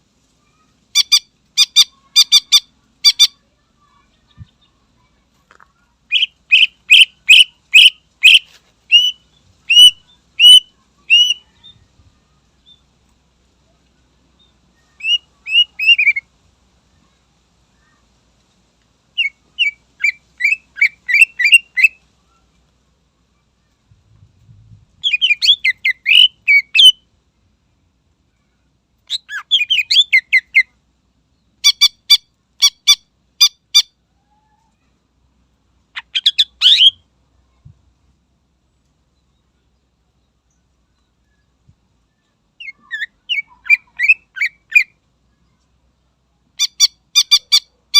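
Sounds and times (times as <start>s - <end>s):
bird singing sharp repeated notes: 6.1s - 11.4s, 25.0s - 27.0s.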